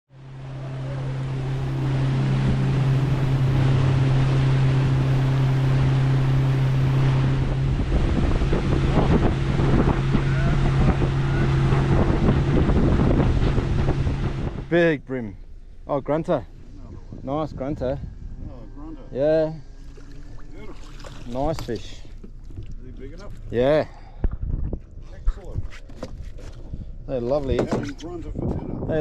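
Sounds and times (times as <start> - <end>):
boat motor droning: 0.1 - 29.0
wind buffeting microphone: 0.4 - 15.2, 15.9 - 29.0.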